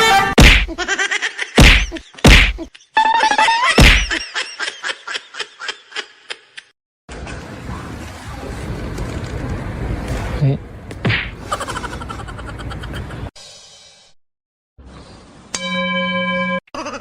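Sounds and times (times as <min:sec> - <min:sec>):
loud sharp whacks: 0:00.4 - 0:00.8, 0:01.6 - 0:02.6, 0:03.8 - 0:04.1, 0:11.0 - 0:11.4.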